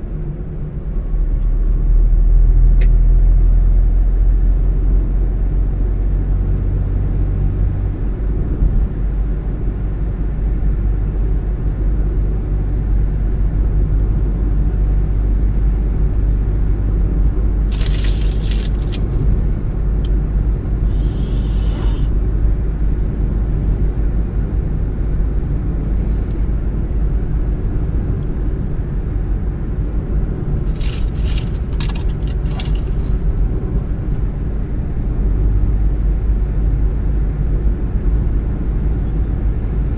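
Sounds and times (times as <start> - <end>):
car engine and tyre rumble: 0.0 - 39.9
short bursts of hiss: 20.9 - 22.1.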